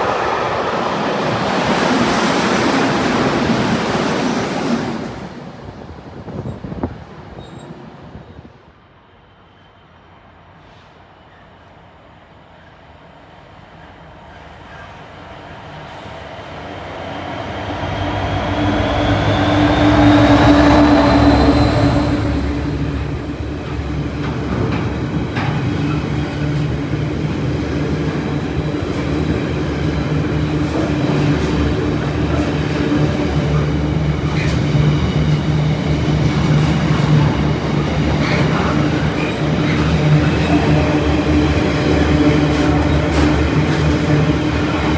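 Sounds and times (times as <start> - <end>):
train rumbling past: 0.0 - 11.8, 12.4 - 44.9
wheels clicking over rail joints: 23.3 - 44.9.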